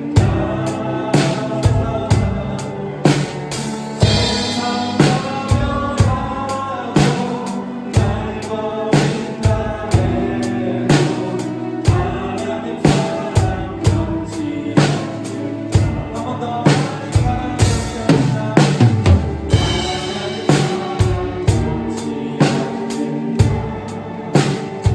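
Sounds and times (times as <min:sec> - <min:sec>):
drum kit beat: 0:00.0 - 0:24.9
worship song recording: 0:00.0 - 0:24.9.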